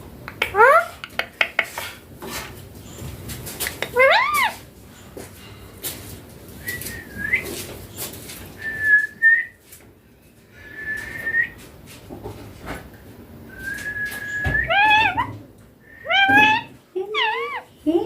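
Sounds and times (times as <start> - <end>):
parakeet whistling: 15.9 - 16.7.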